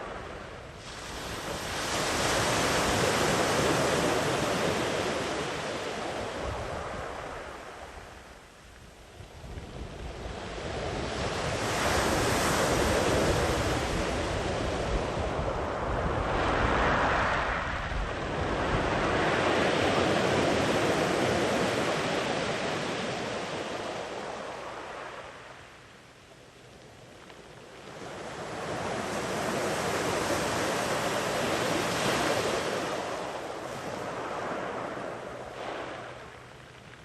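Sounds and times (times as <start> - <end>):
sea waves breaking on beach: 0.8 - 7.7, 28.0 - 36.6.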